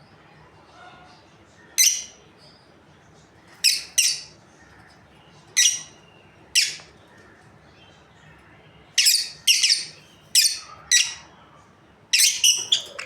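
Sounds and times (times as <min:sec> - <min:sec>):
lovebirds chirping shrilly: 0:12.2 - 0:13.0.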